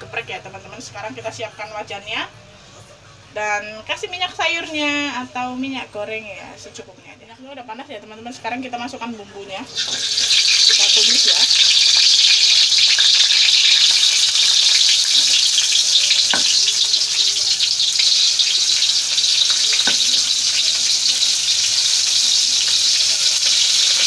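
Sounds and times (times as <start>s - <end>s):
paste sizzling in hot oil: 9.7s - 24.0s
knocks on wok: 16.3s - 16.6s.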